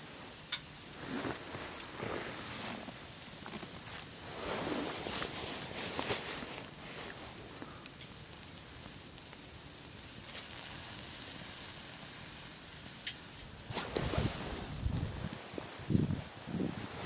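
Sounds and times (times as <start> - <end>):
campfire hissing and crackling: 0.0 - 17.0
rustling handling noises: 1.0 - 7.8, 13.7 - 17.0.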